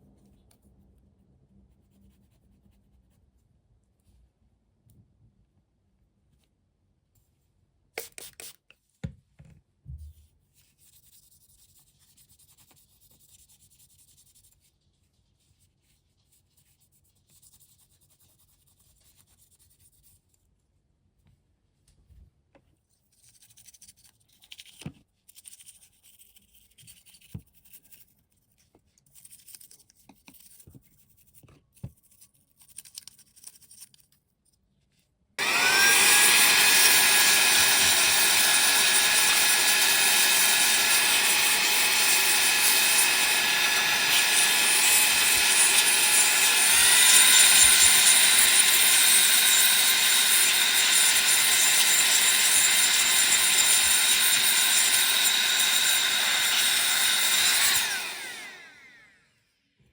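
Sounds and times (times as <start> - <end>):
electric power tool whining: 35.4 - 59.4.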